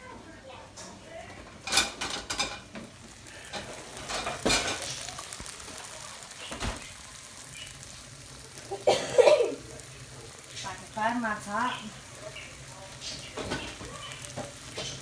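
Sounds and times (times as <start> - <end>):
pan sizzling: 0.0 - 15.0
pots and pan lids clattering: 1.4 - 5.0, 13.3 - 15.0.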